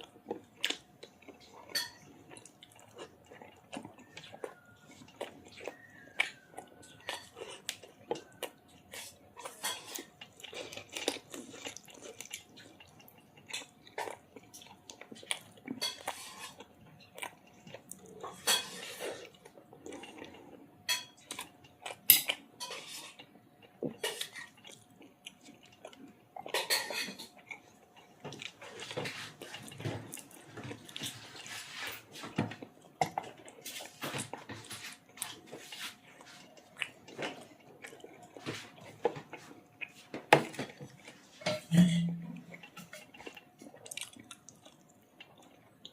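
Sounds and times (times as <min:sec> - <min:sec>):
person chewing food: 0:00.0 - 0:45.9
dishes and cutlery clinking: 0:01.6 - 0:02.1, 0:09.4 - 0:10.1, 0:15.8 - 0:16.6, 0:18.3 - 0:19.3, 0:20.9 - 0:21.3, 0:22.1 - 0:23.2, 0:26.5 - 0:27.4, 0:37.1 - 0:43.4.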